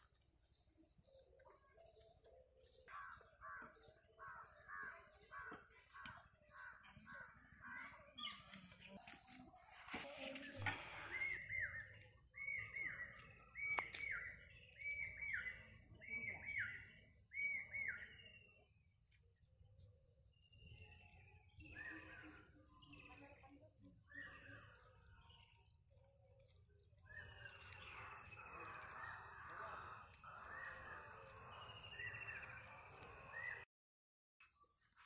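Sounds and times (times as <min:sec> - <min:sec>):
birds calling: 0:09.9 - 0:18.6, 0:24.0 - 0:33.6.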